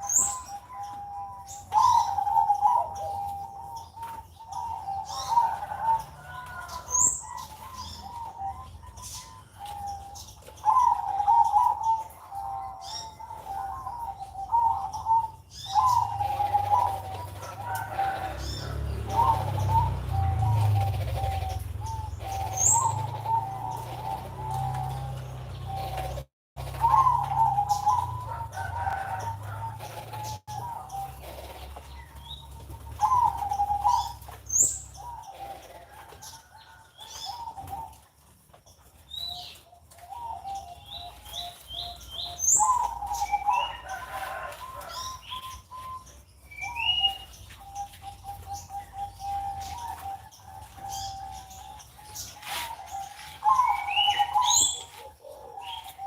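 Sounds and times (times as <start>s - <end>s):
doves cooing with trills: 0.0s - 56.0s
small birds chirping: 0.0s - 56.0s.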